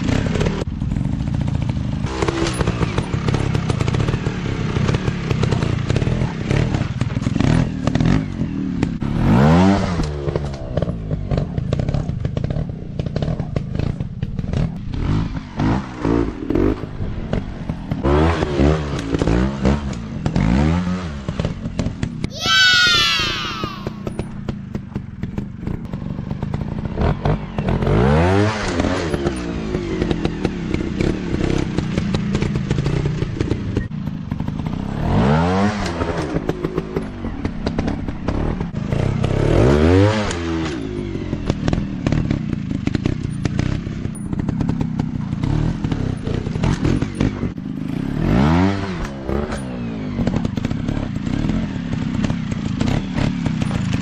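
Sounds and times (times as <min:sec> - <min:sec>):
dirt bike engine revving: 0:02.0 - 0:24.4, 0:25.2 - 0:40.8, 0:41.4 - 0:53.9
engine clattering: 0:24.1 - 0:28.0, 0:49.0 - 0:54.0.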